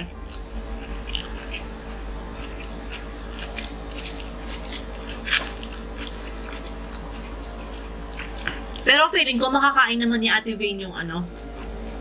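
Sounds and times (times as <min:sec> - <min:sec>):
wet chewing with crackles: 0:00.0 - 0:09.0
steady low hum: 0:00.0 - 0:12.0.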